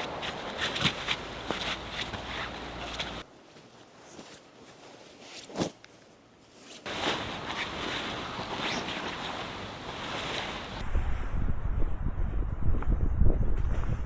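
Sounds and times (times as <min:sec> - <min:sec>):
stream rushing: 0:00.0 - 0:03.2, 0:06.9 - 0:10.8.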